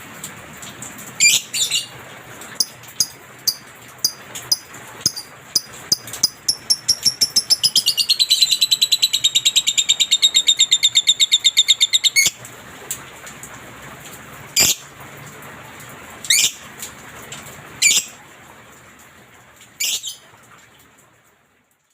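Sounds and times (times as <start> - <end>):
lovebird chirps and rattling trill: 1.2 - 1.9, 2.6 - 12.4, 14.6 - 14.8
shrill bird calls: 6.3 - 12.4.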